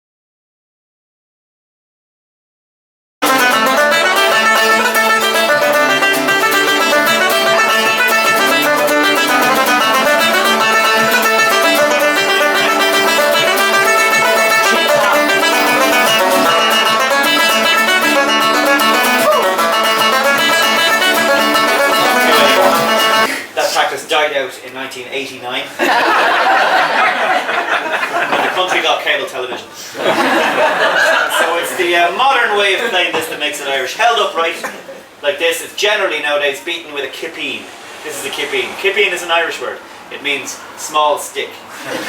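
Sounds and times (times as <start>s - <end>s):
plucked string instrument: 3.2s - 23.3s
instrumental folk music: 3.2s - 23.4s.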